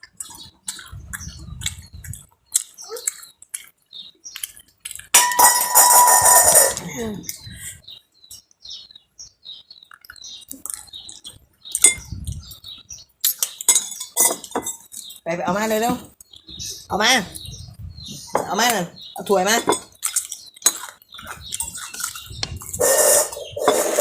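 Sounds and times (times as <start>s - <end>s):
dishes and utensils clinking: 5.2s - 7.0s, 13.2s - 15.1s, 19.6s - 22.2s, 22.8s - 24.0s.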